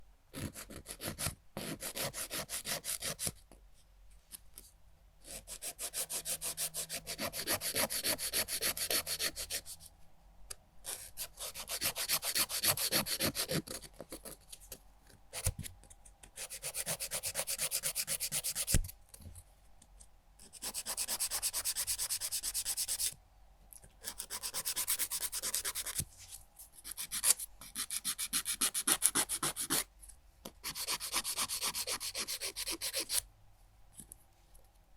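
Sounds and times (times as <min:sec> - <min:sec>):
nail file on fingernails: 0:00.3 - 0:03.4, 0:05.2 - 0:09.9, 0:10.9 - 0:14.4, 0:16.2 - 0:18.8, 0:20.4 - 0:23.2, 0:24.0 - 0:26.0, 0:26.8 - 0:29.9, 0:30.5 - 0:33.2.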